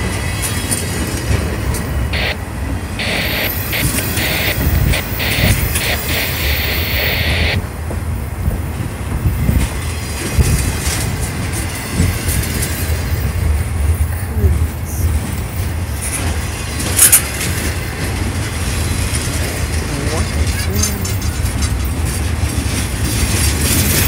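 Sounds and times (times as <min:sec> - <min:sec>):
freight train wheels rumbling: 0:00.0 - 0:24.0
short sharp noise: 0:03.0 - 0:07.6.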